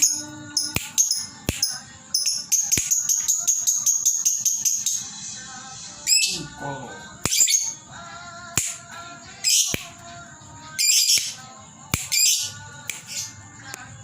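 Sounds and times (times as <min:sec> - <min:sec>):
lovebird chirping: 0:00.0 - 0:05.1.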